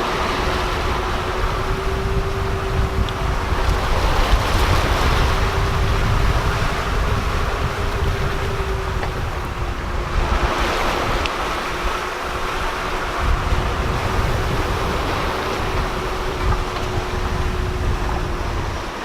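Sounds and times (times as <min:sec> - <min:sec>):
faint steady hum: 0:00.0 - 0:19.0
water rushing along hull: 0:00.0 - 0:19.0
wind buffeting microphone: 0:00.0 - 0:19.0.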